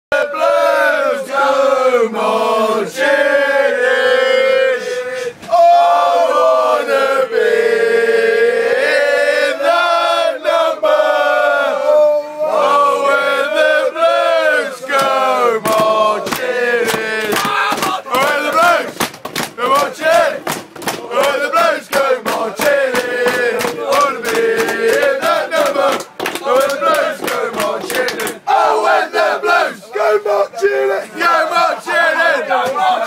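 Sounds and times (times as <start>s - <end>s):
male fans chanting: 0.1s - 19.0s, 19.6s - 33.0s.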